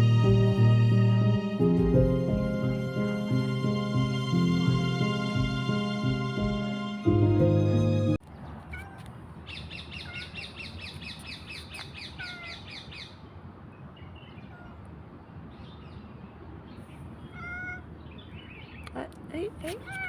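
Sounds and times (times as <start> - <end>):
cat mewing: 8.7 - 9.1, 10.0 - 10.4, 12.2 - 12.7, 14.4 - 14.9, 17.2 - 17.9, 19.8 - 20.0.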